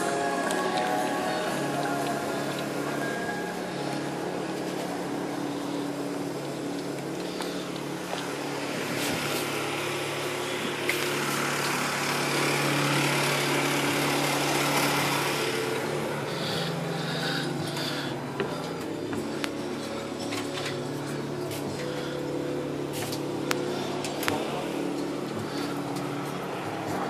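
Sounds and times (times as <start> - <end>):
engine running with steady hum: 0.0 - 27.0.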